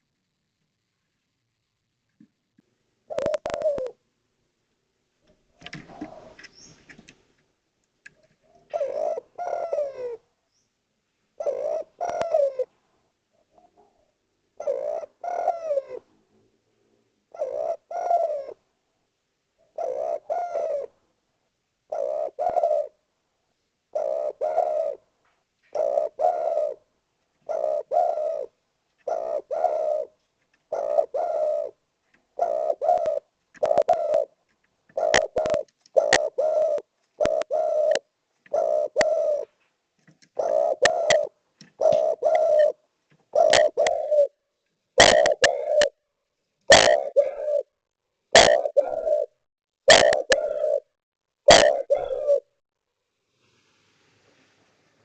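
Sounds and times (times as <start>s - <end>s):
dove cooing: 3.1s - 4.0s, 5.4s - 7.0s, 8.1s - 10.3s, 11.4s - 12.7s, 13.4s - 16.1s, 17.3s - 18.6s, 19.6s - 21.0s, 21.9s - 23.0s, 23.9s - 39.6s, 40.3s - 44.4s, 45.0s - 46.0s, 46.7s - 52.5s.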